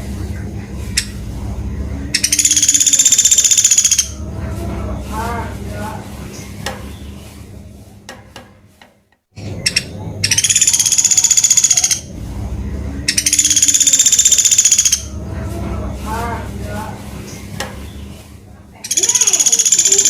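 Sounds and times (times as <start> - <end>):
woodpecker rattling calls: 0.9 - 1.3, 2.1 - 4.3, 9.4 - 12.2, 13.1 - 15.2, 18.8 - 20.0.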